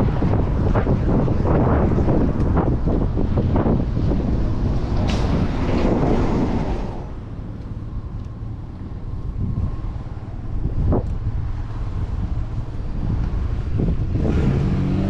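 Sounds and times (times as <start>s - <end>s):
road traffic rumbling: 0.0s - 15.0s
wind rushing over microphone: 0.0s - 15.0s.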